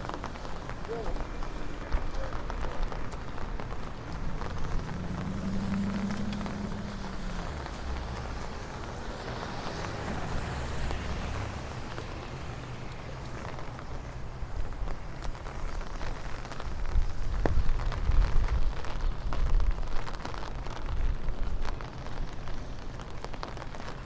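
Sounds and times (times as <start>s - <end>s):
engine hum: 0.0s - 15.4s
cars passing on wet street: 0.0s - 24.0s
light rain pattering and dripping: 0.0s - 24.0s.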